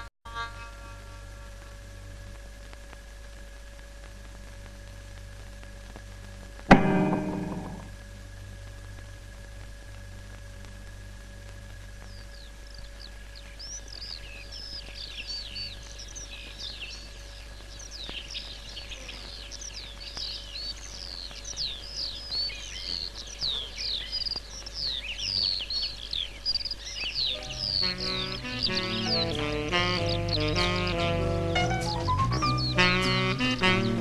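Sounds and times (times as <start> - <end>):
faint steady hum: 0.0 - 34.0
small birds chirping: 12.0 - 34.0.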